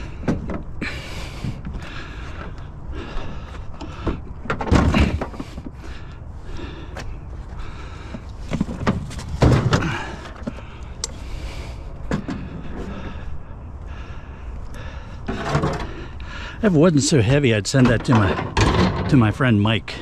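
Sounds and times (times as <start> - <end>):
heavy objects thumping and scraping: 0.0 - 2.6, 3.2 - 6.0, 8.1 - 10.7, 12.0 - 13.2, 15.2 - 19.5.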